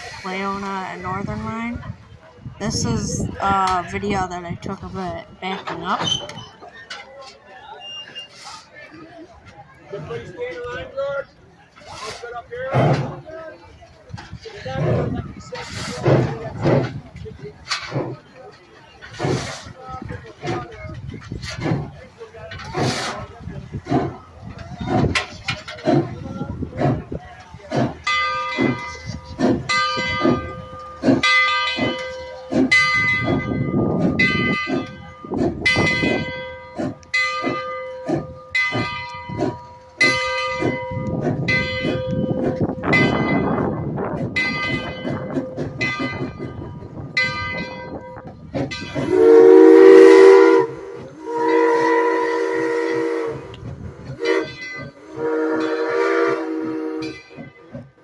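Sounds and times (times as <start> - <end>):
locomotive bell ringing: 28.0 - 53.2, 54.1 - 58.0
steam whistle blasts: 49.0 - 57.4.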